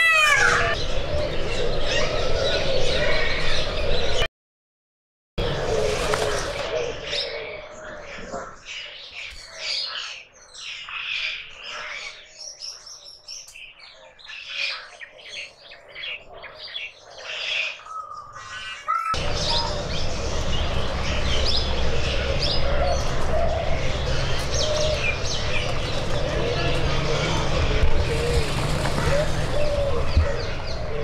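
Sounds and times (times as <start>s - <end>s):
small birds chirping: 6.7s - 31.0s
steady low rumble: 19.2s - 31.0s.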